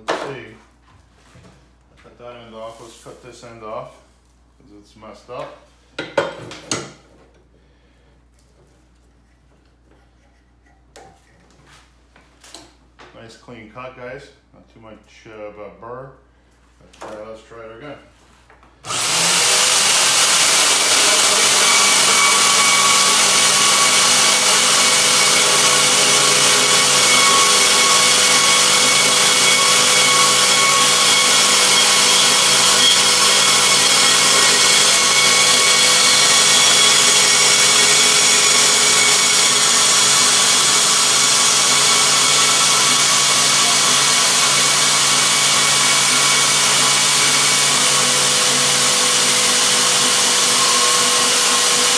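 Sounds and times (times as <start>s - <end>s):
bandsaw cutting steel: 18.8s - 51.9s.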